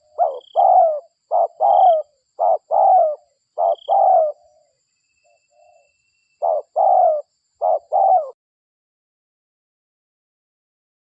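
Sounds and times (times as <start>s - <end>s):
dove cooing: 0.0s - 4.7s, 5.6s - 8.4s.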